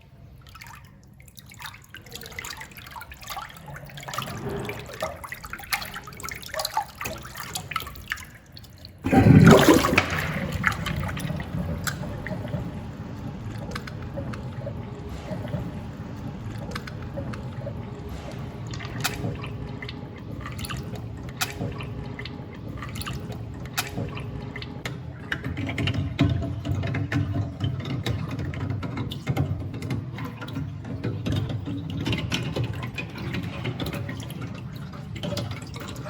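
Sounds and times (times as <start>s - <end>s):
water drips: 0.0s - 36.0s
water swirling: 0.0s - 36.0s
steady low hum: 9.0s - 25.3s.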